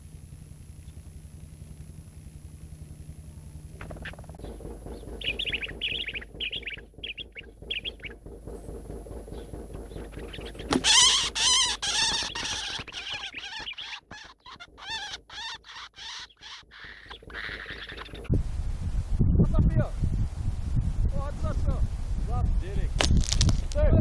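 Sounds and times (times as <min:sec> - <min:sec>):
bird harsh wavering calls: 0:03.8 - 0:18.3
high bird chirps: 0:03.9 - 0:08.2, 0:09.3 - 0:18.3.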